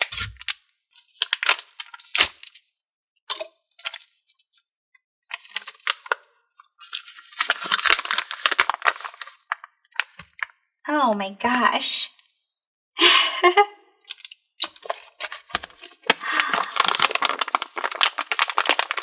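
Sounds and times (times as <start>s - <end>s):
slime squishing and popping: 15.6s - 19.0s.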